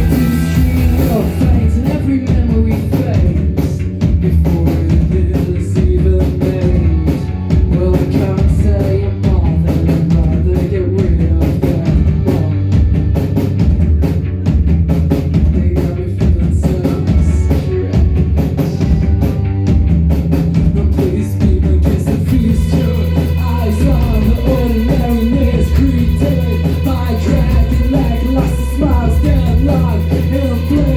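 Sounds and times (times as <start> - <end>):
live rock band playing: 0.0 - 30.9.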